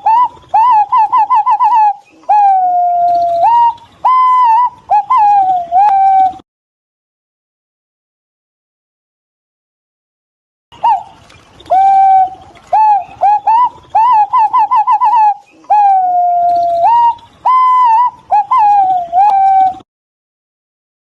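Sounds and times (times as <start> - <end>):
pigeon whistling calls: 0.0 - 6.4, 10.8 - 19.8.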